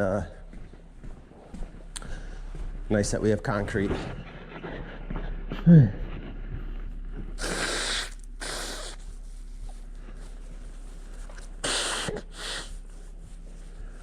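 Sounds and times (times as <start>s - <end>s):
broom sweeping concrete floor: 7.4s - 14.0s.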